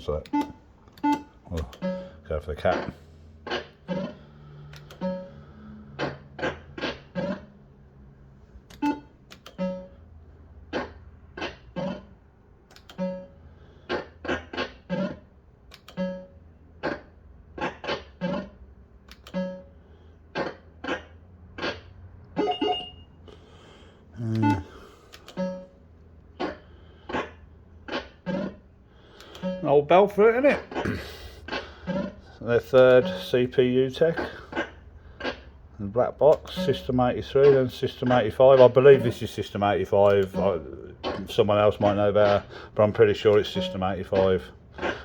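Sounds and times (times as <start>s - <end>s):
fruit machine bleeping notes: 0.0s - 2.3s, 8.8s - 10.0s, 22.4s - 23.2s, 24.2s - 25.8s, 29.3s - 30.1s, 32.8s - 33.7s, 36.5s - 37.0s, 43.5s - 44.4s
steady low hum: 22.2s - 45.0s.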